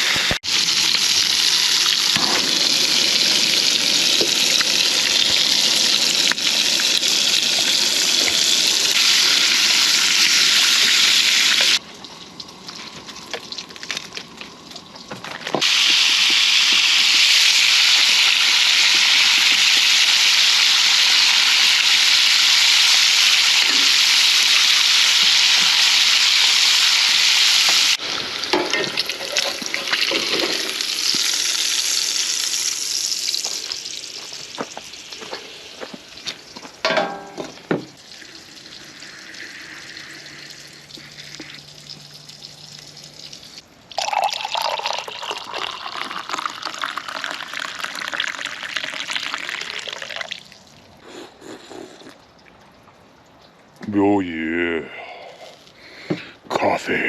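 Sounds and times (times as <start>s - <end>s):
loud steady hiss: 0.0s - 11.8s, 15.6s - 36.2s
sizzling frying: 0.0s - 50.7s
utensils clattering and stirring: 28.5s - 30.8s.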